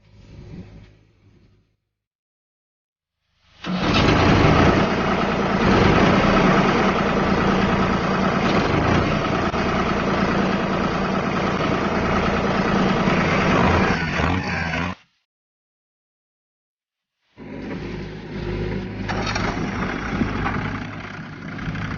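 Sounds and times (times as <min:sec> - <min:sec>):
tractor engine running: 0:03.6 - 0:15.0, 0:17.4 - 0:21.9.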